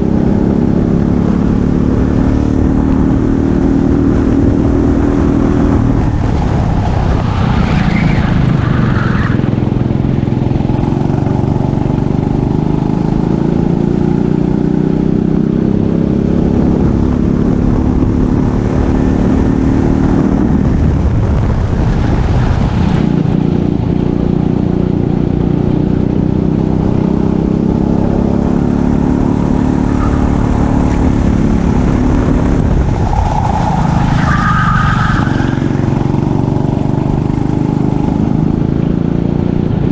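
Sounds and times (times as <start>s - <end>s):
kart engine accelerating: 23.1s - 39.9s.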